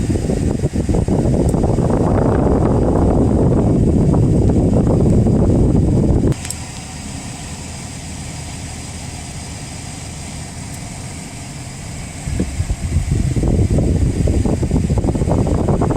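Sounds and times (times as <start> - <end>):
wind noise on microphone: 0.0 - 7.4, 10.8 - 15.9
car engine idling: 0.0 - 15.9.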